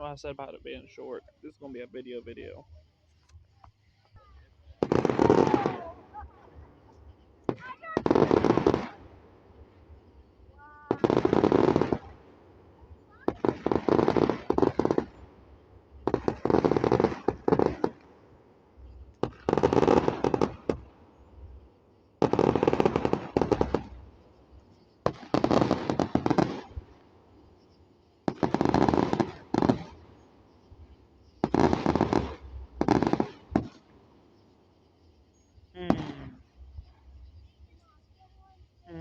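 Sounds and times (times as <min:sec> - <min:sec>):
fireworks crackling pops: 0:00.0 - 0:39.0.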